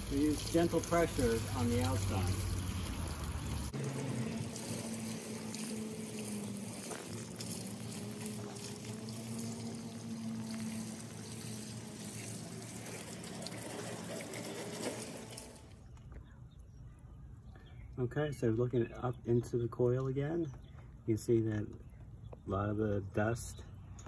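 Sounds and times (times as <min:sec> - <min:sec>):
hose water spraying on metal fins: 0:00.0 - 0:15.8.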